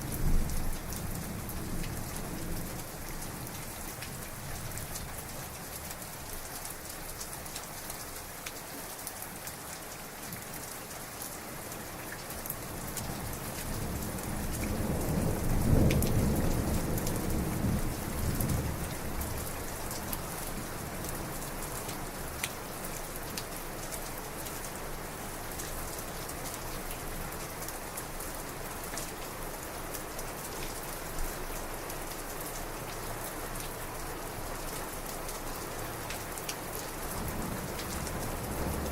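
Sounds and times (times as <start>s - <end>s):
heavy rain falling: 0.0s - 38.9s
raindrops ticking: 21.1s - 38.9s
thunder rumbling: 37.2s - 38.9s.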